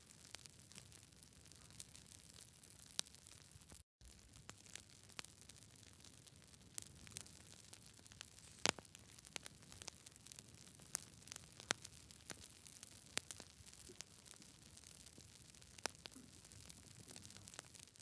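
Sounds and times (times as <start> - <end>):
campfire crackling: 0.1 - 18.0
fire pops: 3.7 - 18.0.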